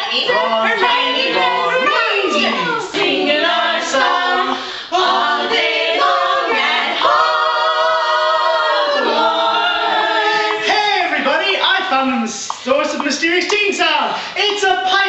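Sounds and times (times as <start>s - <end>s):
voices singing a cappella: 0.0s - 13.1s.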